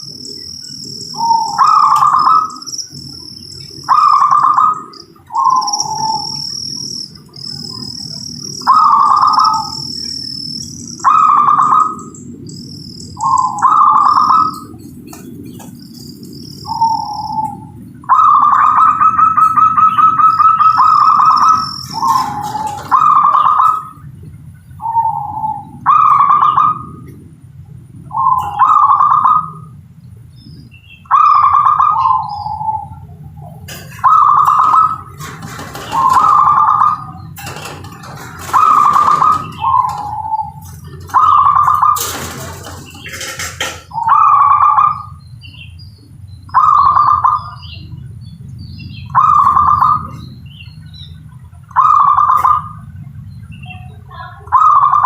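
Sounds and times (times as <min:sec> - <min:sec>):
dove cooing: 0:00.0 - 0:24.1, 0:28.1 - 0:29.8, 0:31.1 - 0:45.2, 0:51.8 - 0:53.0, 0:53.7 - 0:55.0.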